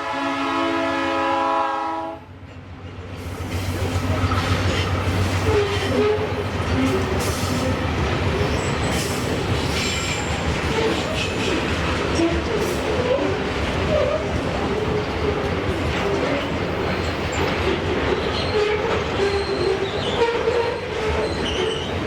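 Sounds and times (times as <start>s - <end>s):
locomotive air horn: 0.0s - 2.3s, 5.4s - 6.4s
train wheels clattering on rails: 2.6s - 22.0s
high wheel squeals: 18.2s - 22.0s.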